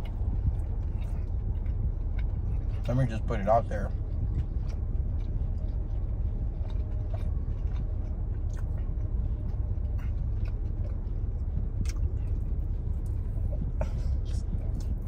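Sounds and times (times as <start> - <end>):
person chewing pizza: 0.0 - 15.0
steady low rumble: 0.0 - 15.0.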